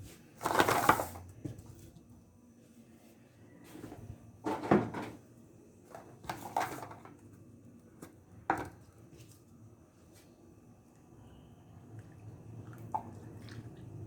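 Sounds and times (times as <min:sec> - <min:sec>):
containers and utensils clattering: 0:00.4 - 0:01.3, 0:04.4 - 0:05.2, 0:05.9 - 0:07.2.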